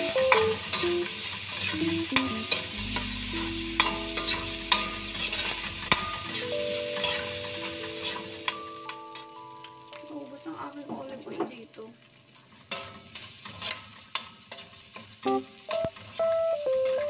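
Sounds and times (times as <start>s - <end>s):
food sizzling in oil: 0.0s - 17.0s
metal spatula scraping wok: 2.4s - 8.5s, 12.7s - 15.0s.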